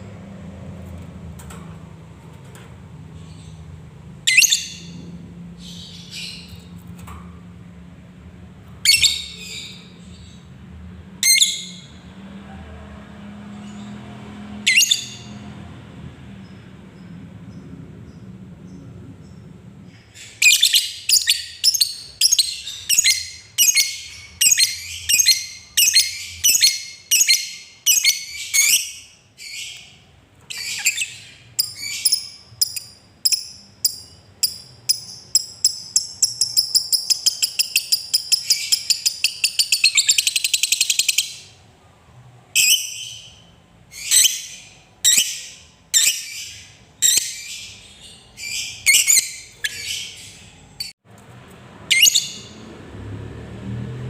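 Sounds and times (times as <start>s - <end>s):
lovebird shrill calls: 51.9s - 52.5s.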